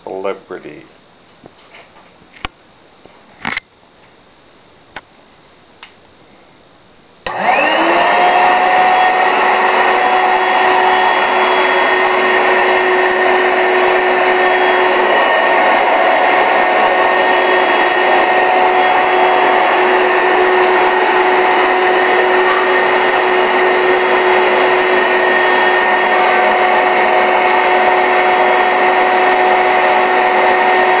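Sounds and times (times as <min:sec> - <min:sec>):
vacuum cleaner running: 0:07.2 - 0:31.0.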